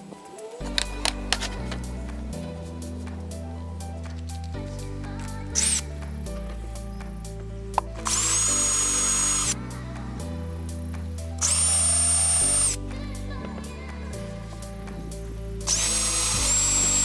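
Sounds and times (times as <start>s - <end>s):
background music: 0.0s - 17.0s
power drill whining: 5.6s - 5.8s, 8.0s - 9.6s, 11.4s - 12.8s, 15.7s - 17.0s.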